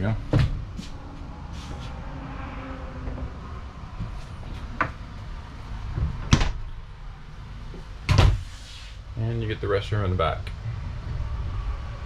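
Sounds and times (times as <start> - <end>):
low handling rumble: 9.1 - 12.0.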